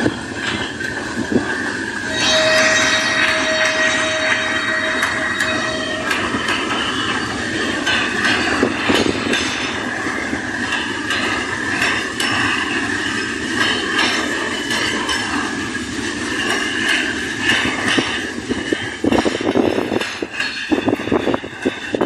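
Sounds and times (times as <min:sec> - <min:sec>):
diesel train rumbling clatter: 0:00.0 - 0:22.0
high-pitched squeal: 0:01.9 - 0:10.8.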